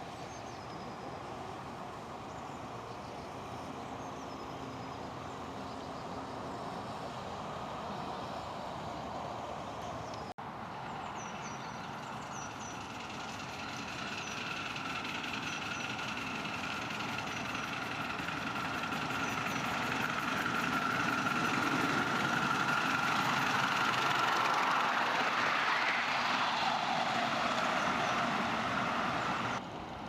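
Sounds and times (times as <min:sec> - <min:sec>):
miniature train running: 0:11.9 - 0:29.6.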